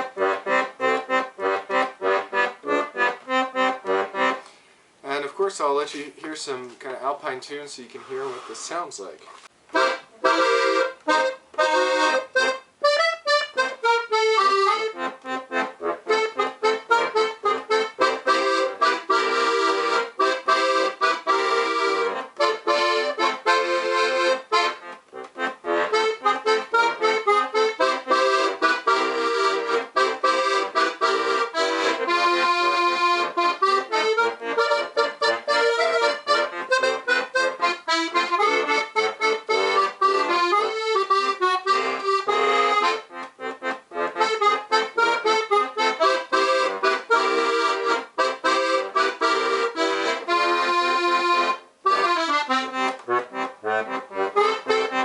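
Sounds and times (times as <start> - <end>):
accordion playing lively tune: 0.0 - 4.6, 9.7 - 55.0.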